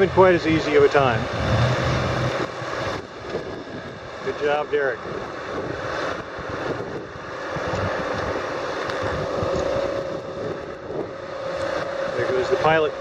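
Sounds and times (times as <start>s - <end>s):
boat engine droning: 0.0s - 13.0s
wind buffeting microphone: 0.0s - 13.0s.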